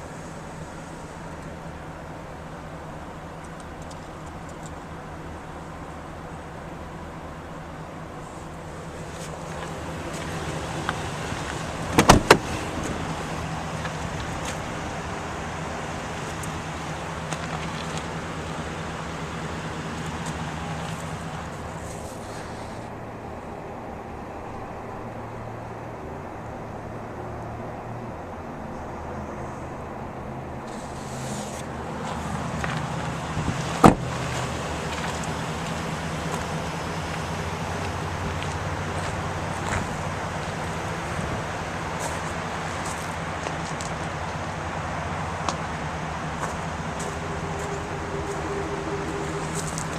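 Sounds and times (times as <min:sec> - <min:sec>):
pickup truck idling: 0:00.0 - 0:27.4, 0:28.3 - 0:49.9
road and wind noise: 0:00.0 - 0:49.9
sharp knocks: 0:11.9 - 0:12.5.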